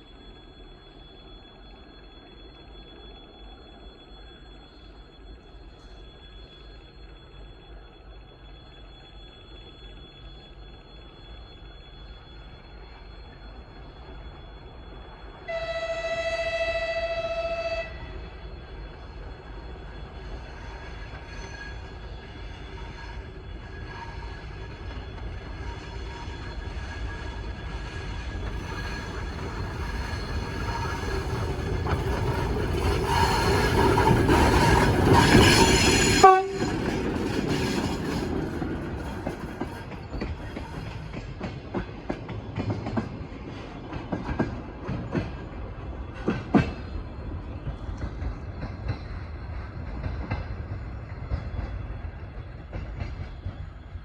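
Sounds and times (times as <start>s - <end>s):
diesel locomotive engine: 0.0s - 54.0s
locomotive horn blast: 15.5s - 18.2s, 36.1s - 36.8s
wheels clicking over rail joints: 23.5s - 53.8s.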